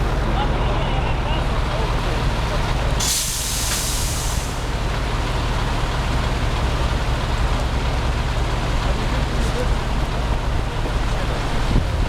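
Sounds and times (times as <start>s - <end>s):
burst of hiss: 3.0s - 4.6s.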